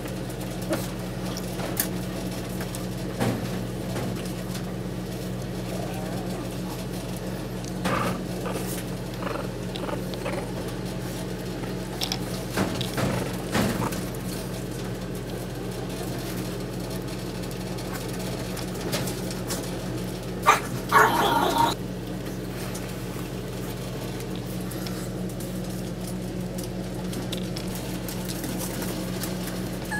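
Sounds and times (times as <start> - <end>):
puppies playing: 5.1 - 15.8, 20.4 - 29.9
puppy yelp: 20.4 - 21.8.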